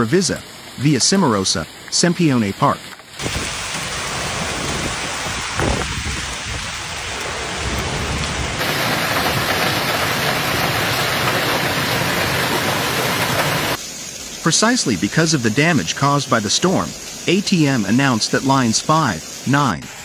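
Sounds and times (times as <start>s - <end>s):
heavy rain pouring: 0.0s - 19.8s.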